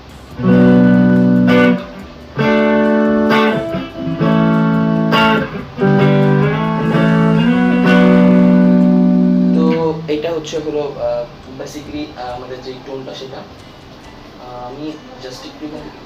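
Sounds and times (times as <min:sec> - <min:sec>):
acoustic guitar chords strummed: 0:00.0 - 0:10.6.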